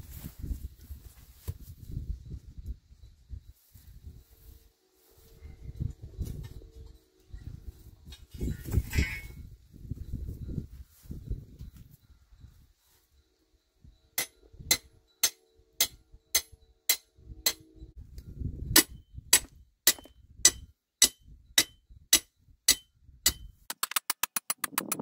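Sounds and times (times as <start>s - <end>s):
hammer blows on metal: 14.2s - 17.8s.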